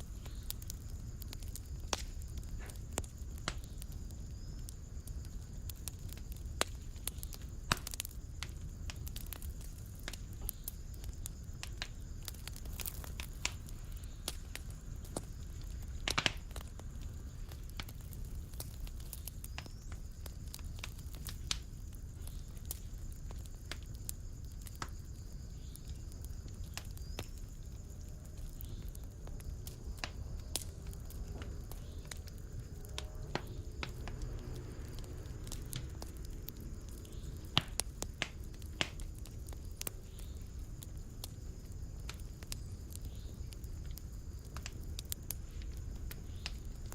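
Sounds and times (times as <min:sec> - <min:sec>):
fire crackling and popping: 0:00.0 - 0:46.9
low rumble of flame: 0:00.0 - 0:46.9.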